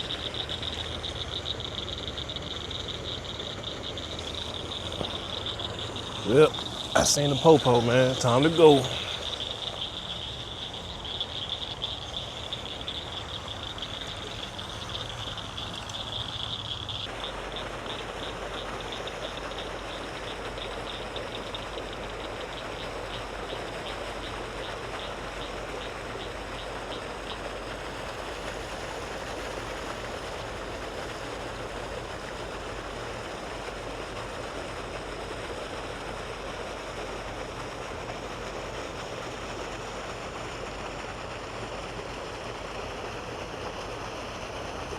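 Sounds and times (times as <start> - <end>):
high insect trill: 0.0 - 30.5
pulsing insect chirp: 0.0 - 44.9.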